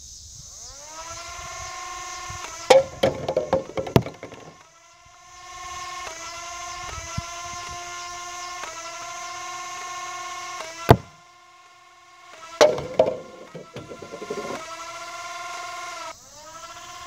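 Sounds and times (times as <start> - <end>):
clatter of knocks and rattles: 2.7 - 4.6, 10.9 - 11.1, 12.6 - 14.6.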